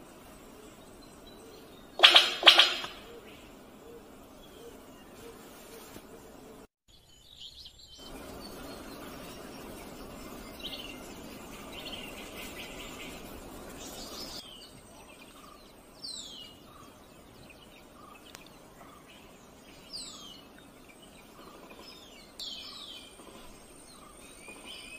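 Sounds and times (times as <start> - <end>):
forest background hiss: 0.0 - 24.9
bird calling with falling whistle: 1.4 - 5.9.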